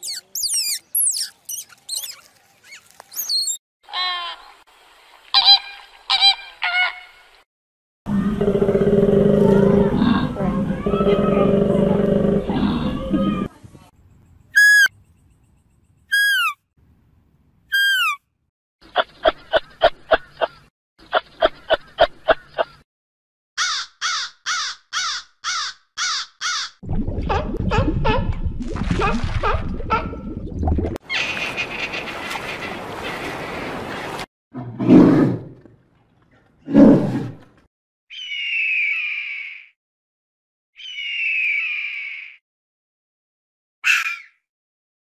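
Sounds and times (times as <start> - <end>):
bear growling: 8.1 - 13.5
deep bellowing call: 8.1 - 13.5
deer whistled calls: 14.6 - 14.9.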